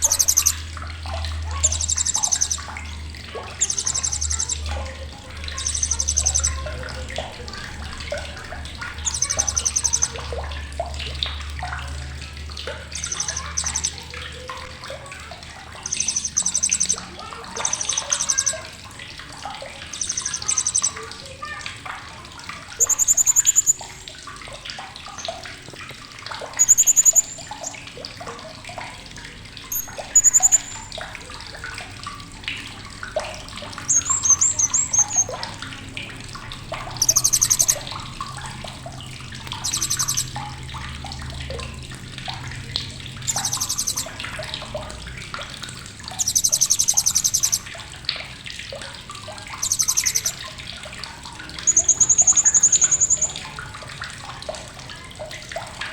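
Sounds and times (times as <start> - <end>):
parrot buzzy high trills: 0.0 - 0.6, 9.0 - 10.2, 12.9 - 14.1, 15.8 - 18.6, 19.8 - 21.4, 22.8 - 24.1, 26.6 - 27.8, 29.7 - 30.9, 37.0 - 37.9, 39.6 - 40.3, 43.3 - 44.2, 46.2 - 47.6, 49.6 - 50.4, 51.6 - 53.4
background chirps and clicks: 0.0 - 55.9.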